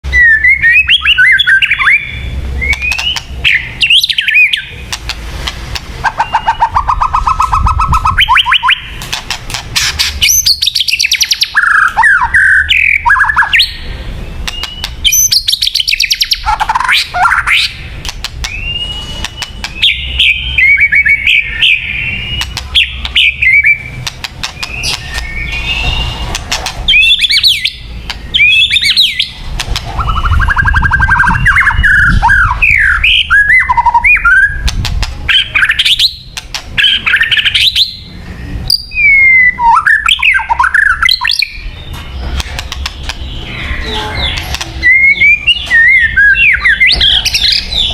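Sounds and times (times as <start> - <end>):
bird singing whistled phrases: 0.1 - 4.7, 6.1 - 8.9, 10.2 - 13.8, 14.4 - 17.8, 18.4 - 24.0, 26.9 - 29.4, 30.0 - 34.6, 35.3 - 41.7, 43.4 - 47.9.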